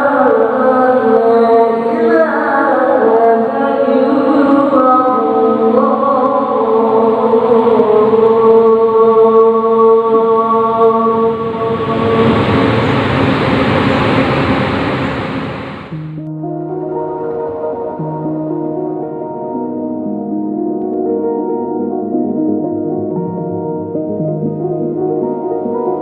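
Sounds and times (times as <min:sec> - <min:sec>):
voice chanting long notes: 0:00.0 - 0:16.2
rush of noise: 0:10.2 - 0:16.2.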